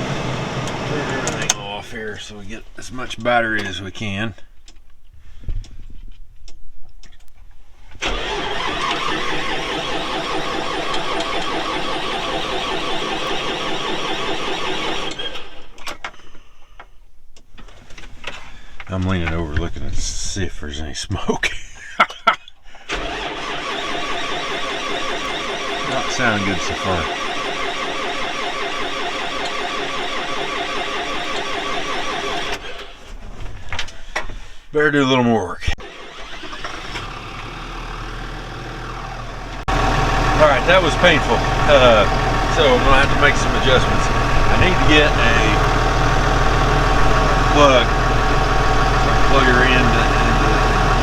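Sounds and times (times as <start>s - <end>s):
tractor engine cranking on starter: 0.0s - 1.7s, 7.9s - 16.1s, 22.9s - 33.2s, 35.8s - 51.0s.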